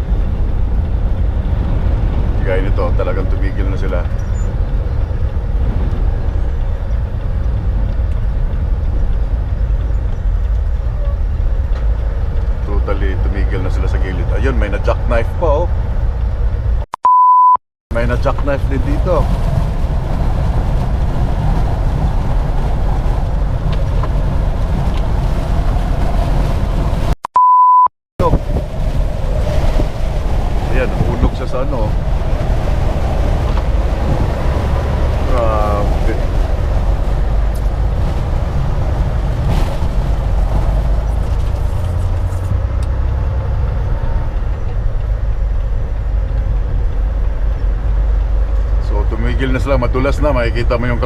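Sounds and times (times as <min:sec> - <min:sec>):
strong wind: 0:00.0 - 0:16.8, 0:17.9 - 0:27.2, 0:28.2 - 0:51.0
truck driving rumble: 0:00.0 - 0:16.9, 0:17.9 - 0:27.2, 0:28.2 - 0:51.0
single steady beep: 0:17.0 - 0:17.6, 0:27.3 - 0:27.9.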